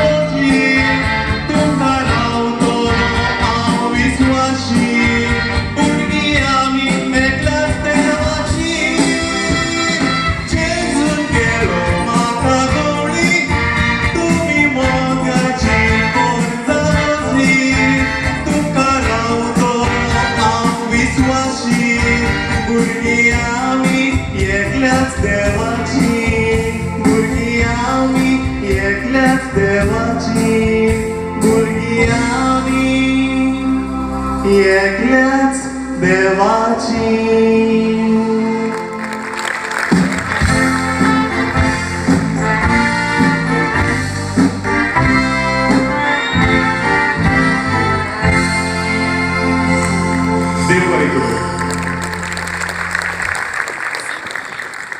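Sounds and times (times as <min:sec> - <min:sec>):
person singing with band: 0:00.0 - 0:38.9
instrumental backing music: 0:00.0 - 0:53.7.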